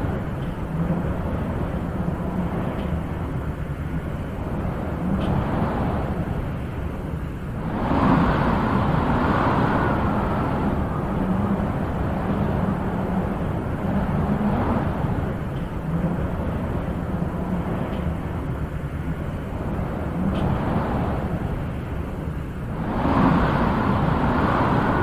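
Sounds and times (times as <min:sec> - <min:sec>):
wind blowing in gusts: 0:00.0 - 0:25.0.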